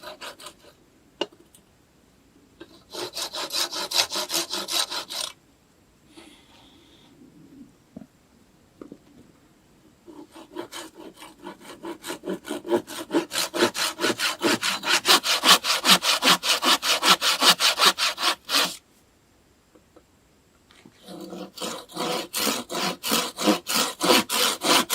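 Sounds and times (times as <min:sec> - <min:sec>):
hand saw cutting wood: 0:00.0 - 0:00.7, 0:02.7 - 0:05.4, 0:10.1 - 0:18.8, 0:21.0 - 0:24.9.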